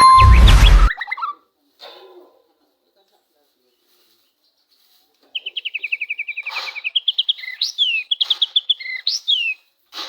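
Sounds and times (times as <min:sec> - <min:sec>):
bird singing whistled notes: 0:05.4 - 0:09.6
harsh rasping bird calls: 0:05.4 - 0:09.6.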